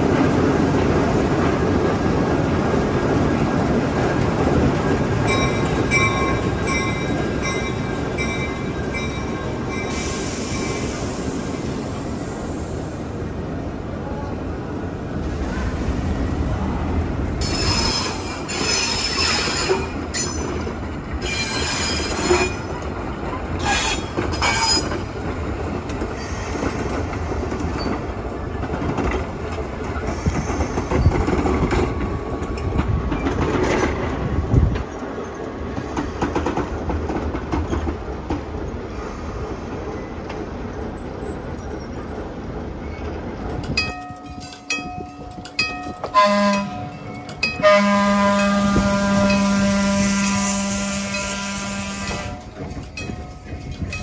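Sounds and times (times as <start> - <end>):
train rumbling past: 0.0 - 54.0
wheels clicking over rail joints: 49.2 - 54.0.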